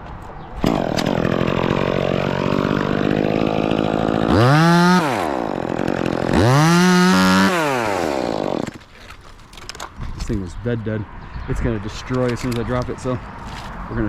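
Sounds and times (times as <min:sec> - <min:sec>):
chainsaw idling and revving: 0:00.6 - 0:08.8.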